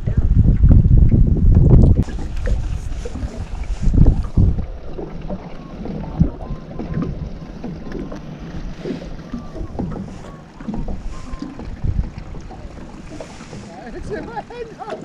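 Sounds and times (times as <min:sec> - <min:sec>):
water noise: 0:00.0 - 0:15.0
wind: 0:00.0 - 0:15.0
knocks from boat: 0:04.0 - 0:15.0.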